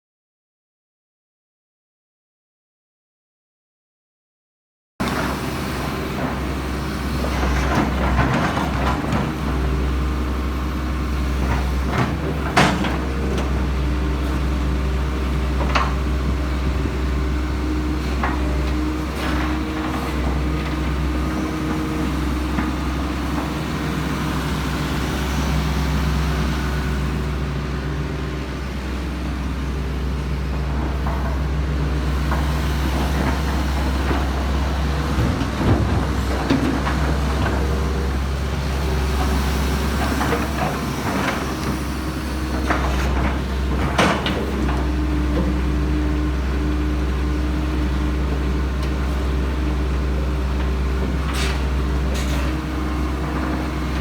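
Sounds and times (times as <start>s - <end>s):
diesel engines rumbling: 5.0s - 54.0s.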